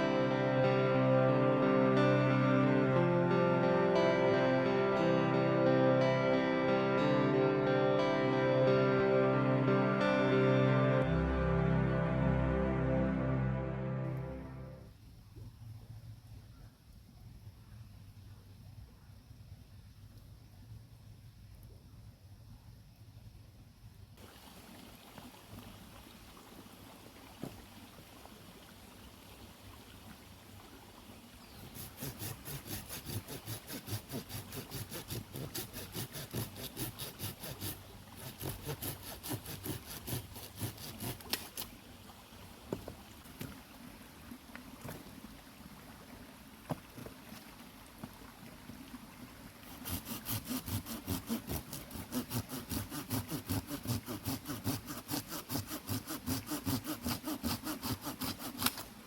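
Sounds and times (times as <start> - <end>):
low steady background noise: 11.0 - 33.5
hand saw cutting wood: 31.6 - 41.7, 49.6 - 59.0.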